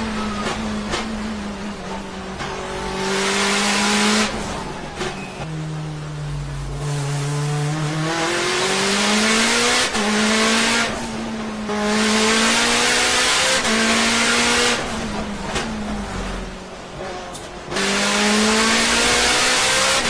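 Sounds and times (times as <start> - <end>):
car engine revving hard: 0.0 - 17.0, 17.6 - 20.0.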